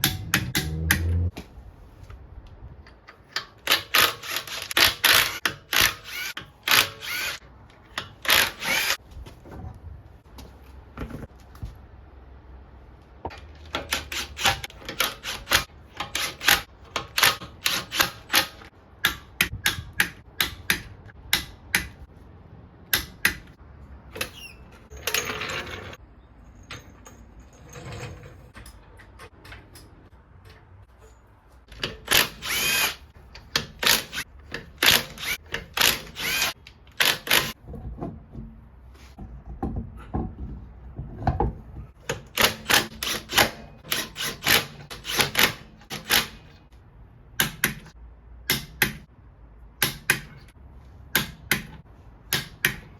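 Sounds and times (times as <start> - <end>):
power tool running: 32.1 - 33.0, 35.0 - 37.5.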